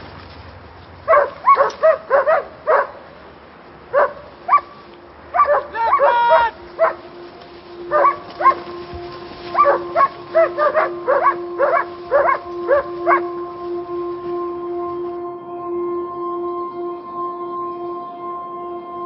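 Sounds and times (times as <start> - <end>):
dog barking: 1.1 - 3.0, 3.9 - 4.7, 5.3 - 7.0, 7.9 - 8.6, 9.6 - 13.3
held music drone: 3.2 - 19.0.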